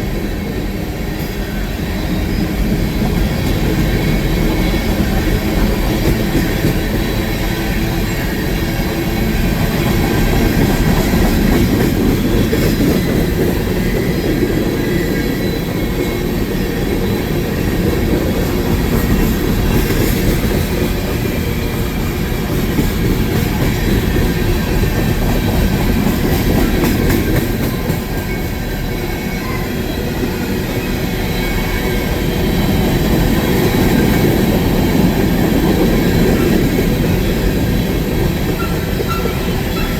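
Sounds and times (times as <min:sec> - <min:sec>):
train wheels rumbling on rails: 0:00.0 - 0:39.9
faint wheel squeal: 0:38.6 - 0:39.9.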